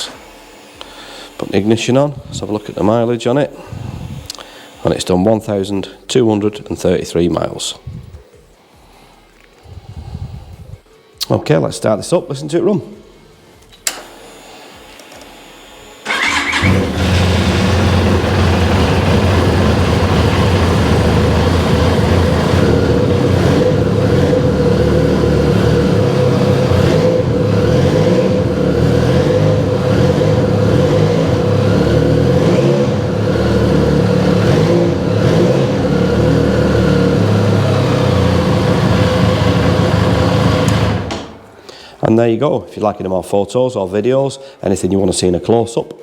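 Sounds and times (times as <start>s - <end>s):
starter motor whirring: 16.0s - 41.5s
motorcycle engine idling: 16.1s - 41.1s.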